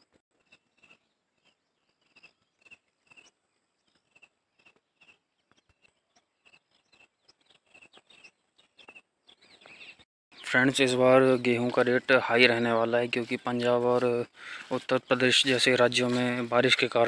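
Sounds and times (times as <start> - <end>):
bird chirping high: 4.0 - 16.6
footsteps on dry grass: 11.2 - 17.0.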